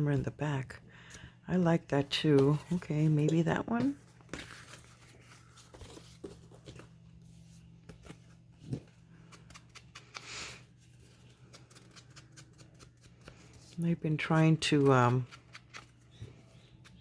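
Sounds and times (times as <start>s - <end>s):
low steady hum: 0.0s - 17.0s
paper rustling: 3.8s - 10.2s.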